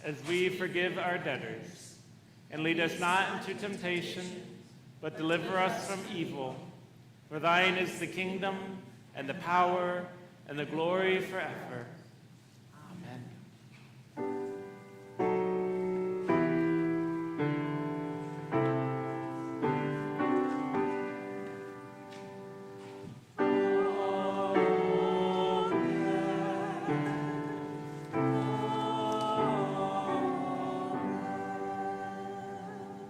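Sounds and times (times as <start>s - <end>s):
piano chords: 14.2s - 33.0s
choir singing with vibrato: 22.3s - 33.0s.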